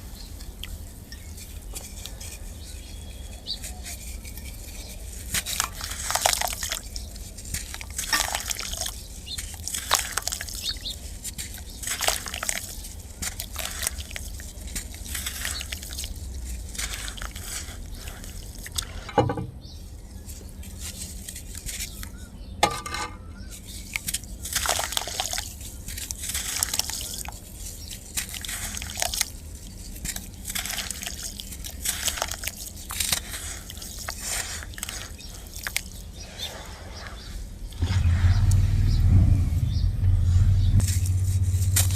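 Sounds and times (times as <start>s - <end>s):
sand crumbling into water: 24.1s - 29.4s.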